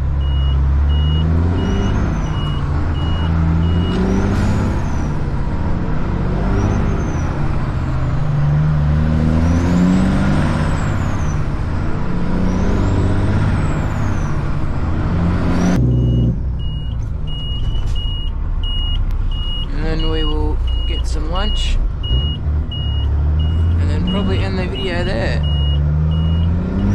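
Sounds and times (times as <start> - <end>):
truck engine shifting gears: 0.0 - 26.9
short high beeps: 15.8 - 26.5.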